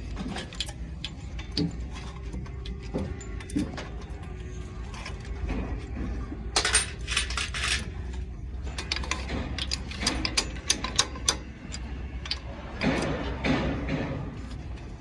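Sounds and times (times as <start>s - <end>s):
metal tools clinking: 6.6s - 14.0s.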